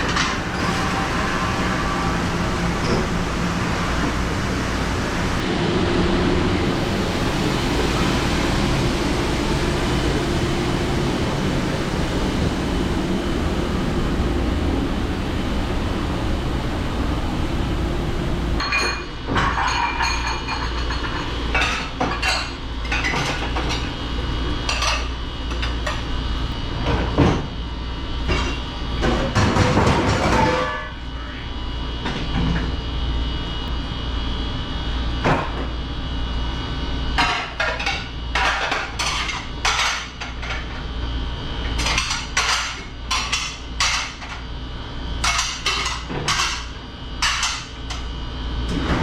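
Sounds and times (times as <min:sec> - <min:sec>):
low hum of dish station: 0:00.0 - 0:49.0.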